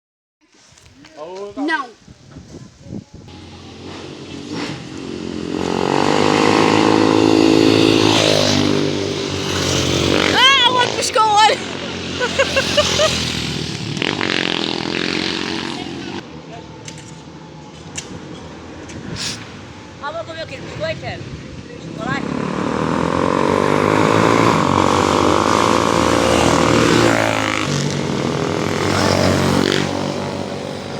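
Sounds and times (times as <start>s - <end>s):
motorcycle engine passing by: 3.3s - 16.2s, 19.8s - 30.9s.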